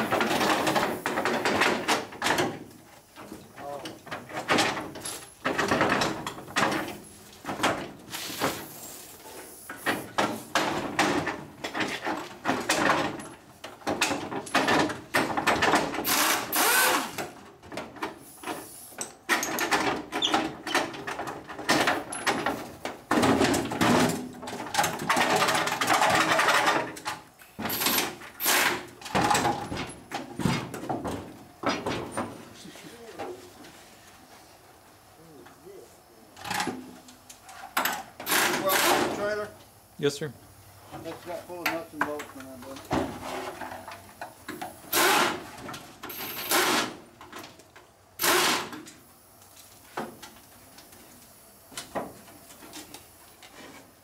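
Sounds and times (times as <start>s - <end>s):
knocks and clanks on metal: 0.0s - 8.7s, 9.7s - 32.6s, 40.9s - 49.0s
power tool noise: 16.0s - 17.3s, 27.6s - 28.9s, 38.2s - 39.3s, 44.8s - 47.0s, 48.2s - 48.8s.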